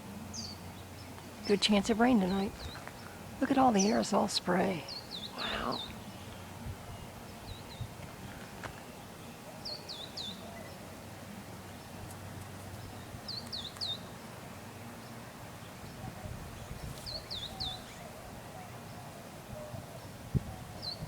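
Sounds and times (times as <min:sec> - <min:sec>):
bird chirping: 0:00.3 - 0:11.0, 0:11.7 - 0:14.3, 0:15.0 - 0:18.2.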